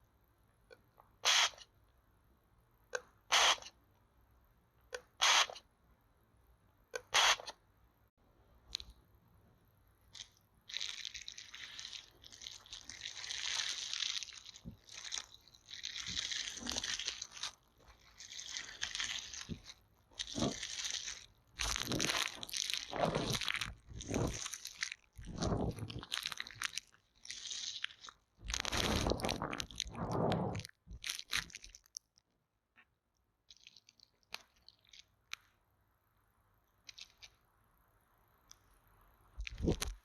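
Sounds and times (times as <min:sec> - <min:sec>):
stick scraping microphone: 0:21.6 - 0:24.5, 0:25.2 - 0:26.1, 0:28.6 - 0:30.7.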